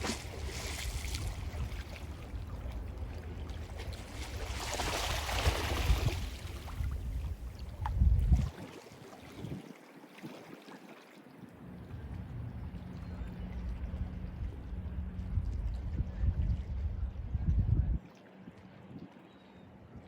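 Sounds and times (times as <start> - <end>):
sea waves washing on shore: 0.0 - 7.6
low rumble: 11.8 - 18.0.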